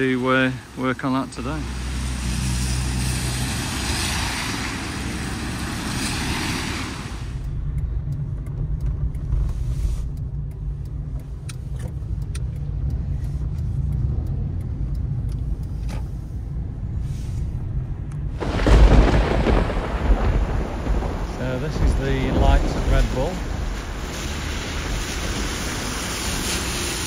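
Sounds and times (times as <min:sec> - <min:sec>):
tyres hissing on wet road: 0:00.0 - 0:07.4, 0:09.5 - 0:10.1, 0:17.0 - 0:17.7, 0:18.4 - 0:27.0
low road rumble: 0:00.0 - 0:27.0
faint ticks: 0:07.4 - 0:17.0.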